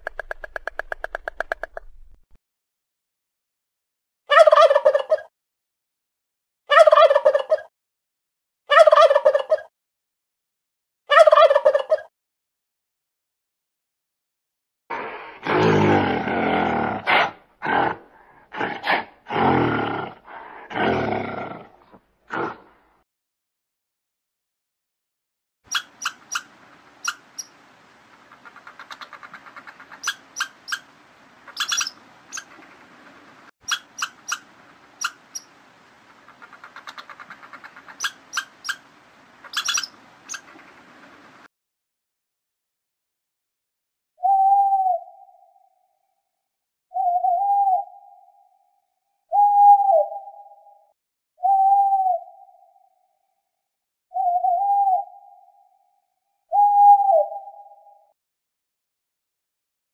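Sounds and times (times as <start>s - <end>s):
large animal deep calls: 14.9s - 22.7s
small animal squeaking: 25.7s - 27.5s, 28.4s - 30.9s, 31.5s - 32.6s, 33.6s - 35.5s, 36.4s - 38.8s, 39.4s - 40.6s
faint rapid chirps: 25.7s - 41.5s.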